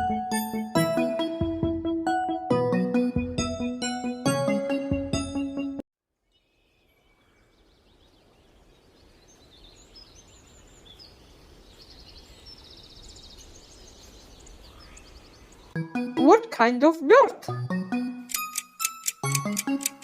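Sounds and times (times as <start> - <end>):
small birds chirping: 6.3 - 15.8.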